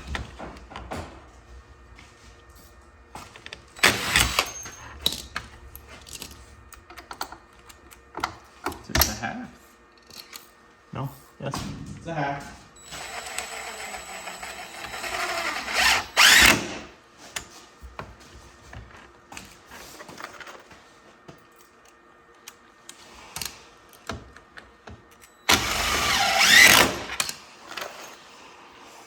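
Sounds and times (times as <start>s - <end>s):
power driver whirring: 3.3s - 9.2s, 12.8s - 17.0s, 25.1s - 27.4s.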